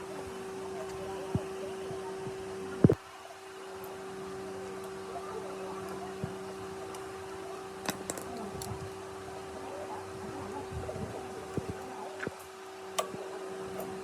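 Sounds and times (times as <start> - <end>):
machine hum: 13.0 - 14.0
short clicks: 13.0 - 14.0.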